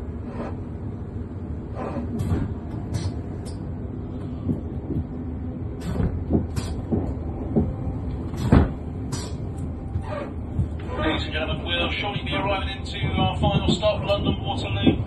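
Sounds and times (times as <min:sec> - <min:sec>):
electric train rumble inside carriage: 0:00.0 - 0:15.0
wheels clicking over rail joints: 0:12.9 - 0:15.0.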